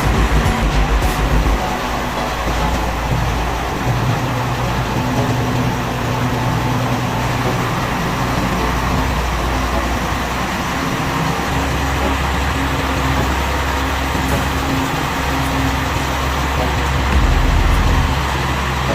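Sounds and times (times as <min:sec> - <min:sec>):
engines running: 0:00.0 - 0:18.9.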